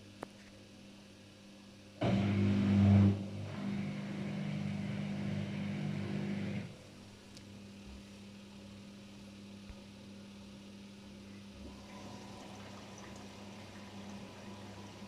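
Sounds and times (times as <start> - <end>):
washing machine humming and rushing: 2.0 - 8.6, 11.0 - 15.0.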